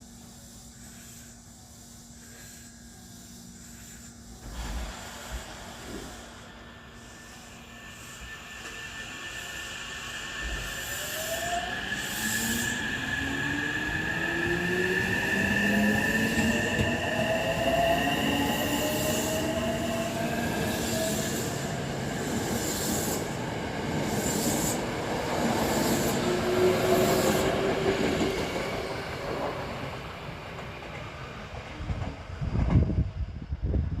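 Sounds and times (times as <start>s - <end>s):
train traction motor whine: 5.8s - 29.6s.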